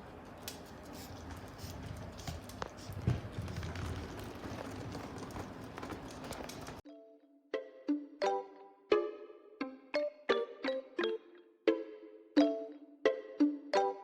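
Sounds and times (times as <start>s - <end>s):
puppy claws clicking and tapping: 0.2s - 6.8s.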